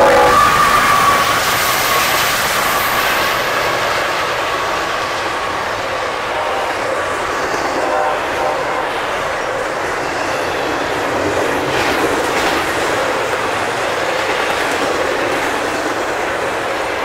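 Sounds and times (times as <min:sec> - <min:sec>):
train horn: 0:00.0 - 0:09.7
train wheels rolling on rails: 0:00.0 - 0:17.0.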